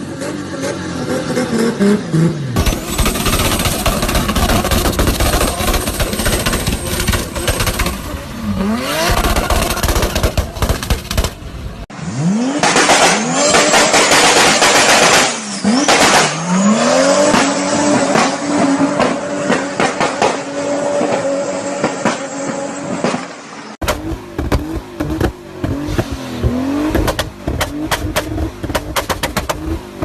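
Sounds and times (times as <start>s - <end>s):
turbo car engine revving: 0.0s - 22.8s, 23.8s - 30.0s
exhaust popping and crackling: 2.6s - 11.5s, 23.8s - 30.0s.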